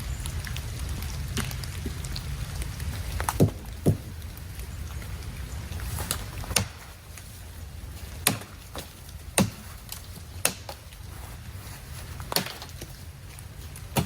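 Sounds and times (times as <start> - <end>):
axe chopping wood: 3.3 - 4.1, 6.1 - 6.9, 8.2 - 10.8, 12.3 - 12.9.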